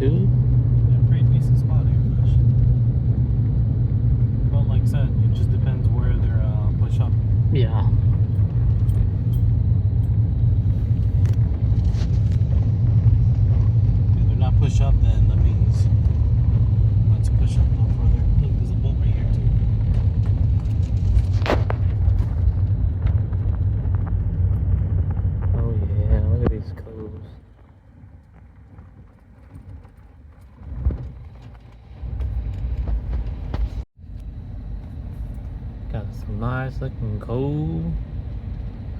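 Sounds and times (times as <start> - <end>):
vehicle engine rumble: 0.0 - 38.9
knocks and rattles: 6.9 - 10.2.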